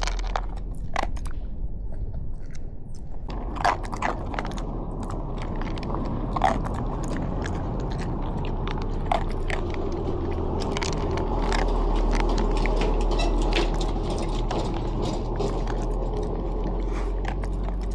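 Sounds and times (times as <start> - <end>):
dog crunching dry food: 0.0 - 17.9
steady low hum: 0.0 - 17.9.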